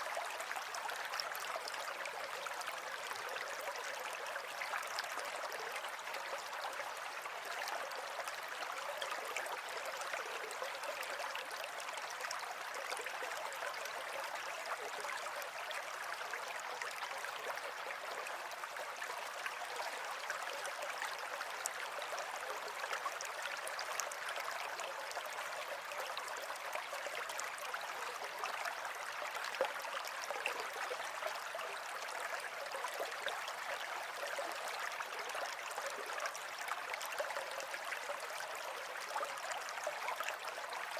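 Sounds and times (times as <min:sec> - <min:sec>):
water flowing steadily: 0:00.0 - 0:40.9.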